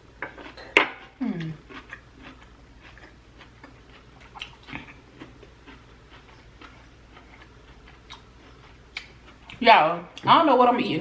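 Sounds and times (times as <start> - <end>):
chewing mouth clicks and smacks: 1.7 - 5.0, 5.7 - 9.6.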